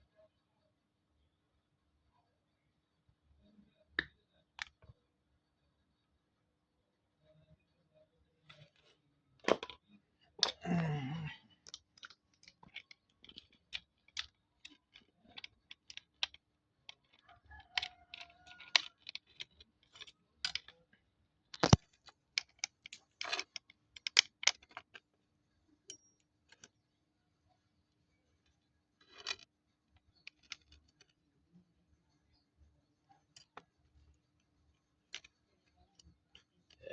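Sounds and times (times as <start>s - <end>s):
hands handling small hard parts: 8.4s - 27.0s, 28.1s - 36.9s.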